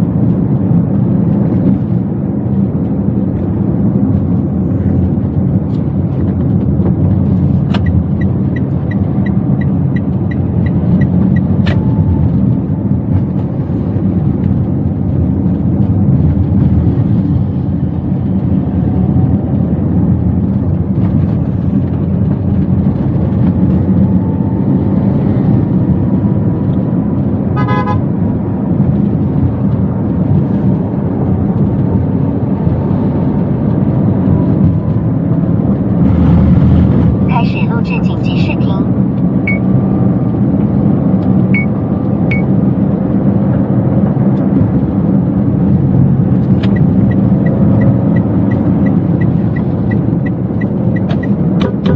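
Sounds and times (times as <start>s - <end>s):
car engine and road rumble: 0.0s - 51.9s
short car horn beep: 27.6s - 28.0s.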